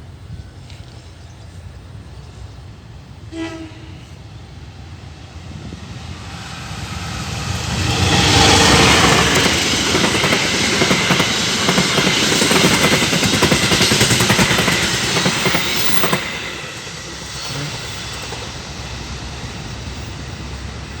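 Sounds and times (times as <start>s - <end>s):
train wheels clattering: 6.2s - 20.0s.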